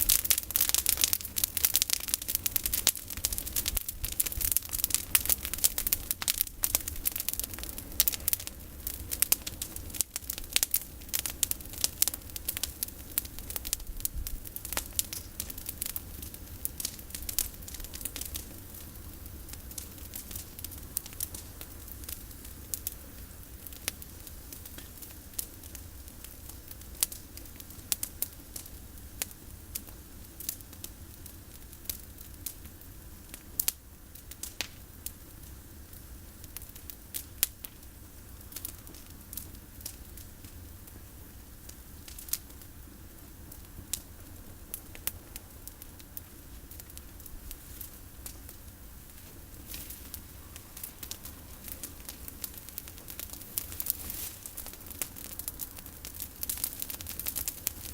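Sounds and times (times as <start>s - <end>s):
campfire crackling and popping: 0.0s - 57.9s.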